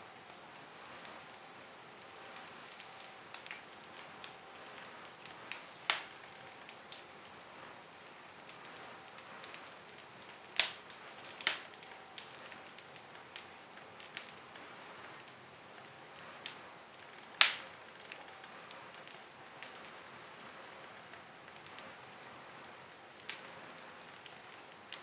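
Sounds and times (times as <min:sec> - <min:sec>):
wood fire crackling: 0:00.0 - 0:25.0
sharp fire pops: 0:04.8 - 0:07.0, 0:10.6 - 0:12.3, 0:17.4 - 0:18.2.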